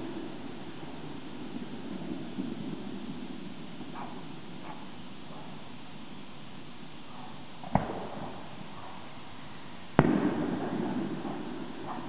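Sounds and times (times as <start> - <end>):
fireworks bangs: 7.6 - 8.8, 10.0 - 12.0.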